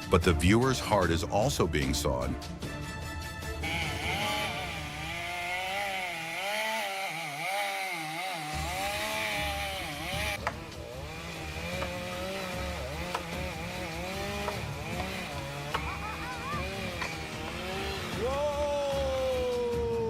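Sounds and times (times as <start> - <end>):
chainsaw cutting into tree: 3.6 - 19.5.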